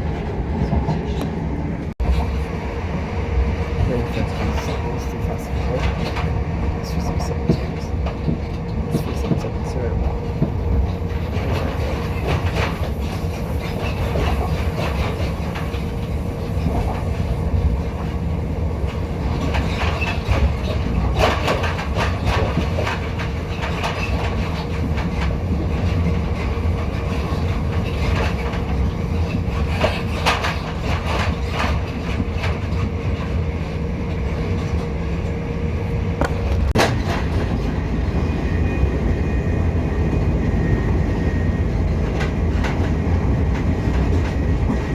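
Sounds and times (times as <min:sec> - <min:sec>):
constant hum: 0:00.0 - 0:44.9
train wheels rumbling on track: 0:00.0 - 0:44.9
wheels clicking over rail joints: 0:03.9 - 0:34.9.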